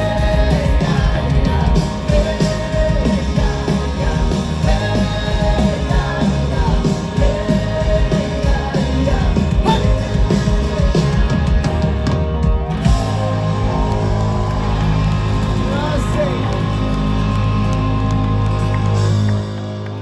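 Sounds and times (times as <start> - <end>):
person singing: 0.0 - 12.0
live rock band playing: 0.0 - 20.0.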